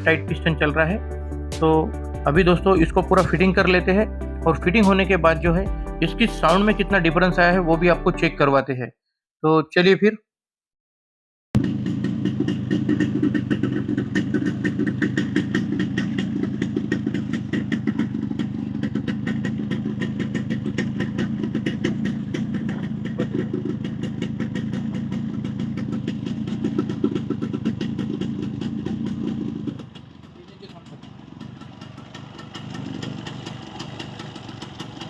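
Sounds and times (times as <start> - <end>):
two-stroke motorcycle engine idling: 11.6 - 35.0.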